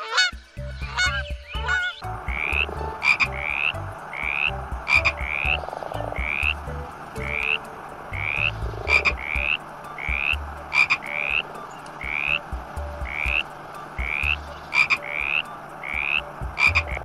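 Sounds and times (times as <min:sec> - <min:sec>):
animal chorus: 0:00.0 - 0:17.0
sharp clicks: 0:02.3 - 0:17.0.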